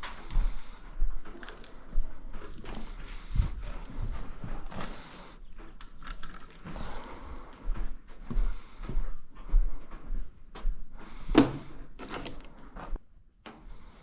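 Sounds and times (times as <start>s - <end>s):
irregular knocks and rustles: 0.0s - 14.0s.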